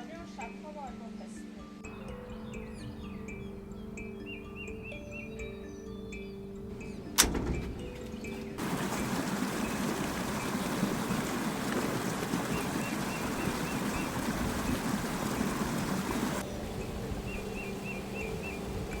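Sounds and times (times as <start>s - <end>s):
spring water rushing: 8.5s - 19.0s.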